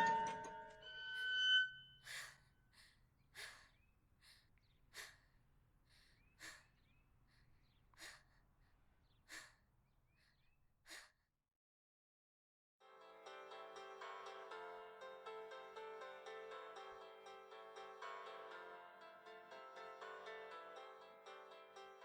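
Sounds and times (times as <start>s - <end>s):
person breathing hard: 2.0s - 11.2s.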